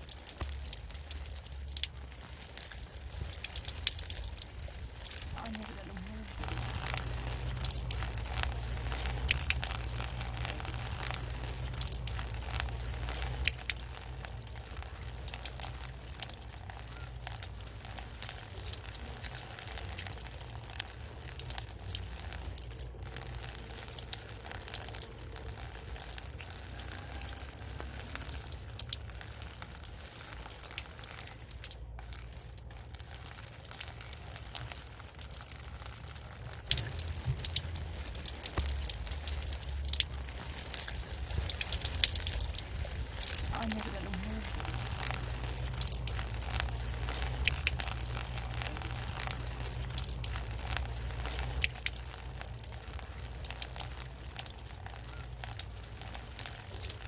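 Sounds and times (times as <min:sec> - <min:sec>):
steady low hum: 0:00.0 - 0:26.6, 0:35.4 - 0:54.2
rain pattering: 0:00.0 - 0:57.0.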